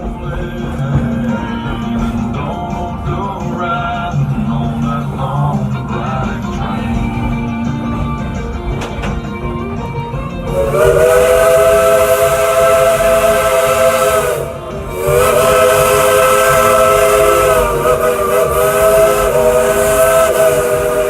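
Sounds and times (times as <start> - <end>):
steam hissing: 0.0 - 21.0
steam locomotive whistle: 10.4 - 21.0.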